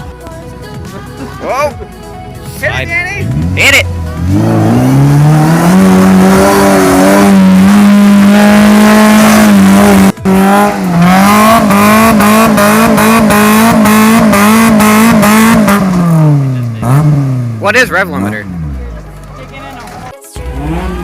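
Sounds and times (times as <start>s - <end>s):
car engine revving hard: 3.2s - 18.9s, 20.4s - 21.0s.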